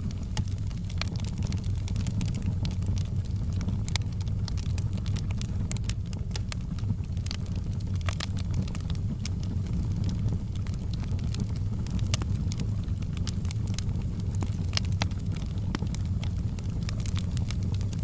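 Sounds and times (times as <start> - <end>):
low rumble of fire: 0.0 - 18.0
wood fire crackling and popping: 0.0 - 18.0.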